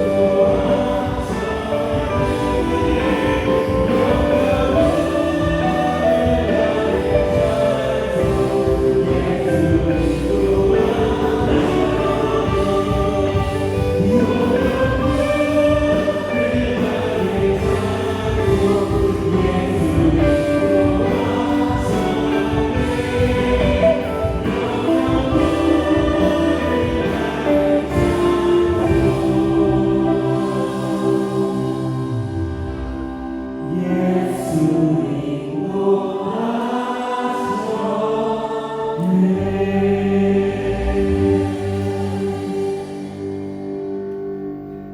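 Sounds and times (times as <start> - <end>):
band playing: 0.0 - 34.2
group singing a praise song: 0.0 - 44.1.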